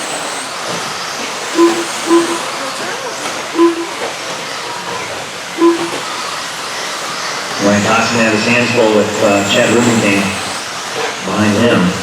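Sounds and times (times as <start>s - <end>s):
hiss of rc trucks racing: 0.0s - 12.0s
short electronic beeps: 1.6s - 2.6s, 3.6s - 4.1s, 5.6s - 6.2s.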